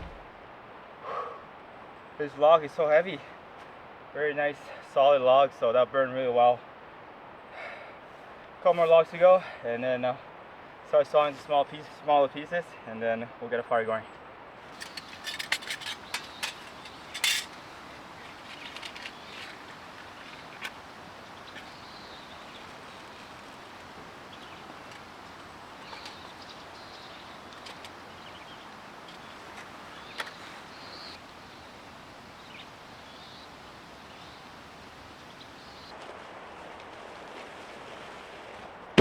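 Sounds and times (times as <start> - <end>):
sharp knocks: 0.0 - 0.3
low outdoor hiss: 0.0 - 39.0
faint short bird calls: 24.1 - 35.9.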